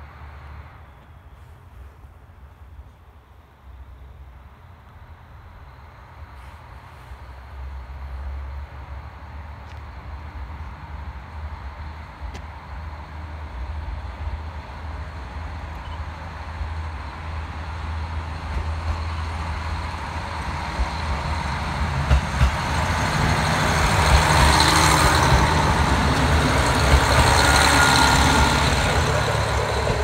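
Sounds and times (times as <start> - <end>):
diesel railcar engine hum: 0.0 - 30.0
train wheels on rails: 6.1 - 30.0.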